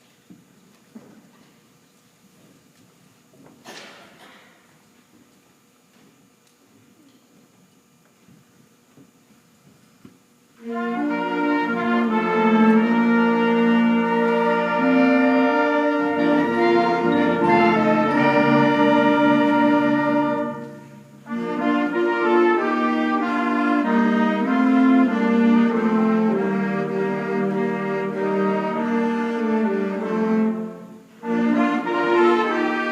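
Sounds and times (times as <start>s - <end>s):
concert band playing chords: 10.6s - 30.5s.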